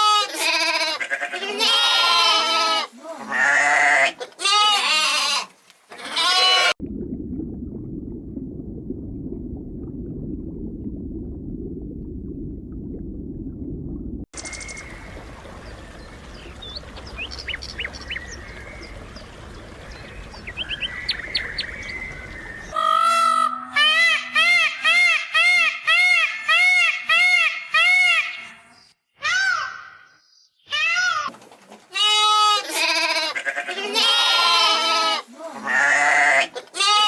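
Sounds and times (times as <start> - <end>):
steady low rumble: 6.8 - 22.7
high bird chirps: 14.4 - 23.5.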